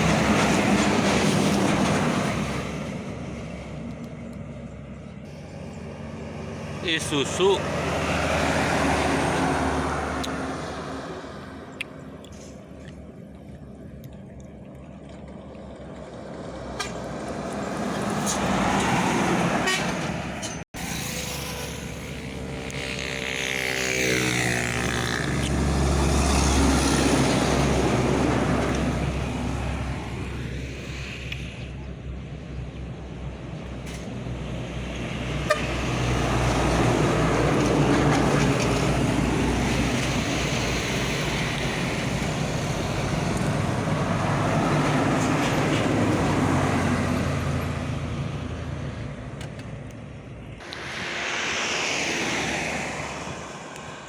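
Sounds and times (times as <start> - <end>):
heavy trucks passing: 0.0 - 14.4, 15.2 - 54.0
vehicle horn: 19.6 - 20.1, 35.4 - 35.9.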